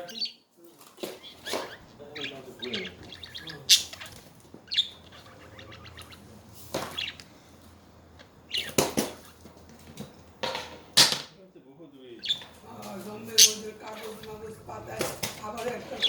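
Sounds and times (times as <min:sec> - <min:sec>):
budgerigars chirping: 0:00.0 - 0:09.6, 0:12.1 - 0:16.0
wings flapping and rustling: 0:00.6 - 0:07.2, 0:08.6 - 0:10.3, 0:12.6 - 0:16.0.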